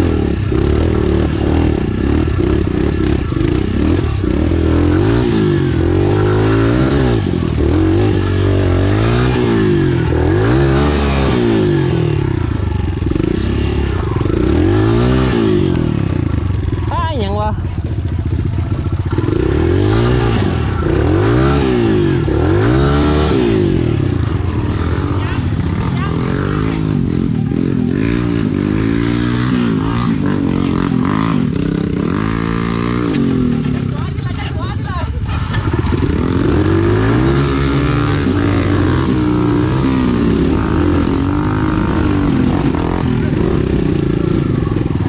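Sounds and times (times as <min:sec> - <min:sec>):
dirt bike engines revving: 0:00.0 - 0:45.0.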